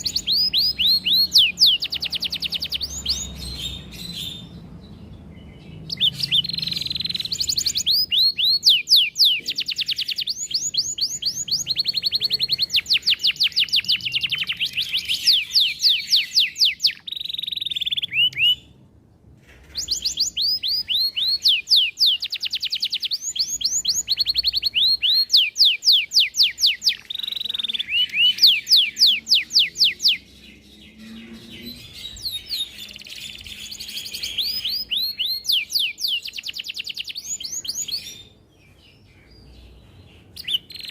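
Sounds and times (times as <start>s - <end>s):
canary singing: 0.0s - 18.8s, 19.6s - 40.9s.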